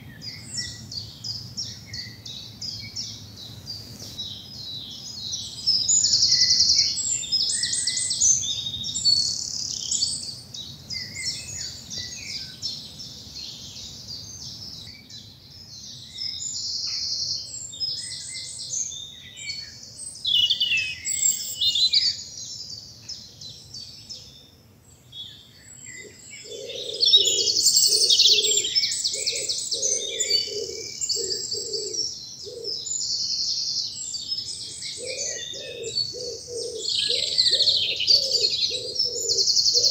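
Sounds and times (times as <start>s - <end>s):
songbirds trilling and warbling: 0.0s - 39.9s
pigeon cooing: 26.4s - 32.8s, 35.0s - 39.9s.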